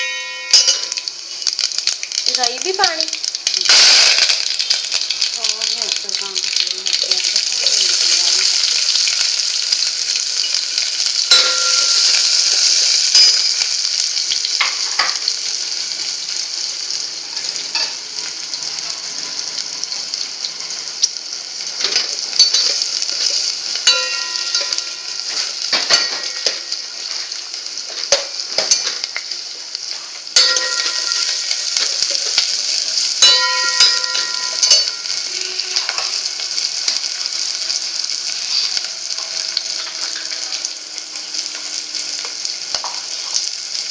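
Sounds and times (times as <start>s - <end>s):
spices sizzling in oil: 0.0s - 43.9s
metal spoon scraping pan: 21.8s - 26.7s, 30.4s - 32.5s, 33.2s - 36.2s.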